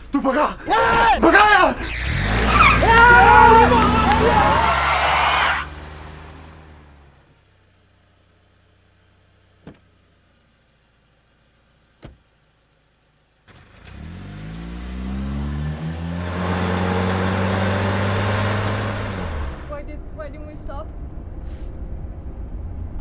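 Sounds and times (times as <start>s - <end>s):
car driving away: 0.7s - 10.0s, 13.4s - 19.9s
car engine accelerating: 0.8s - 9.6s, 13.3s - 20.2s.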